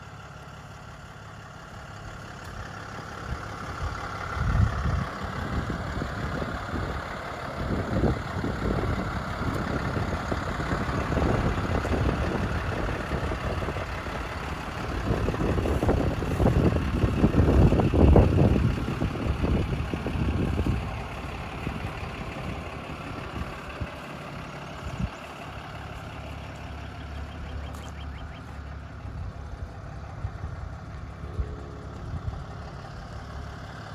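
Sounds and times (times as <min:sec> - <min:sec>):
truck engine running: 0:00.0 - 0:33.9.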